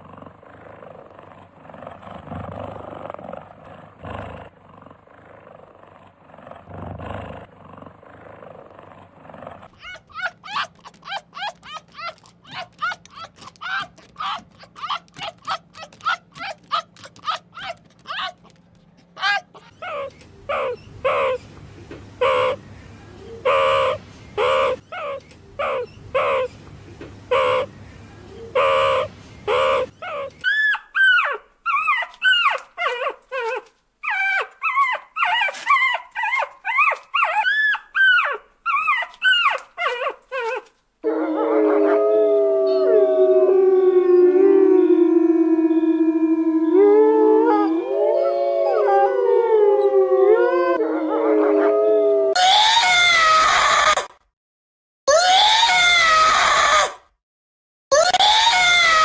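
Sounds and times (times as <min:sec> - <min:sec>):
dog yapping barks: 0:09.8 - 0:18.6, 0:19.2 - 0:20.8
dog yelping and whining: 0:09.8 - 0:21.4, 0:23.4 - 0:26.6, 0:28.6 - 0:40.7
wolves howling: 0:41.0 - 0:54.0.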